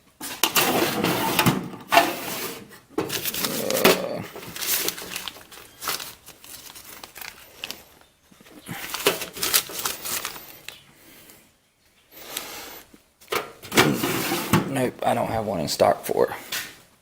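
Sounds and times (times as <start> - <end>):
packaging crinkling and rustling: 0.6 - 10.8.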